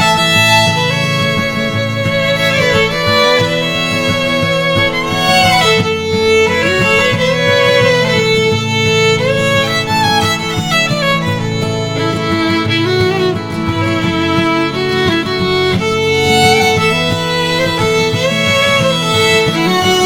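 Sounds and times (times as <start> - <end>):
fiddle playing a gliding melody: 0.0 - 20.0
steady musical accompaniment: 0.0 - 20.0.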